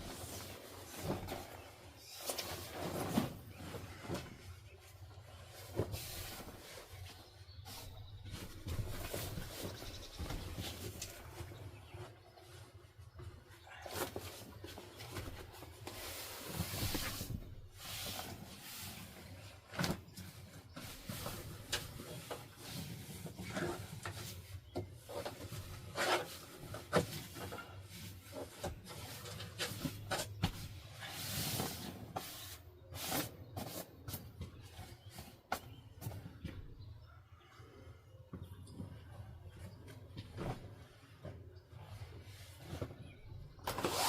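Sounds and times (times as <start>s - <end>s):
rubbing and rustling: 0.0s - 36.4s, 38.8s - 44.0s.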